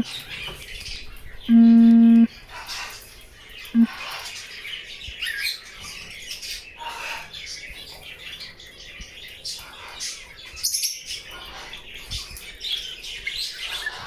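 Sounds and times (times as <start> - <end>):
small birds chirping: 0.0 - 14.0
low buzzing tone: 1.5 - 2.3.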